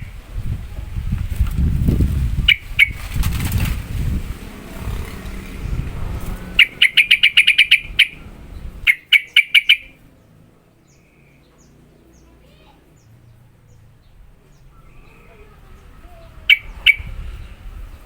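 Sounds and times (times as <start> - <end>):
low rustle: 0.0 - 6.6
bulbul sharp rapid call: 6.6 - 8.2, 8.9 - 10.0.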